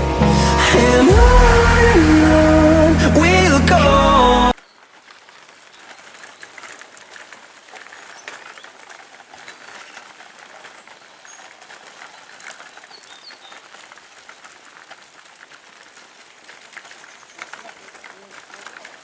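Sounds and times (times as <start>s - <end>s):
steady hiss: 0.0s - 4.6s
small crackles: 4.6s - 19.0s.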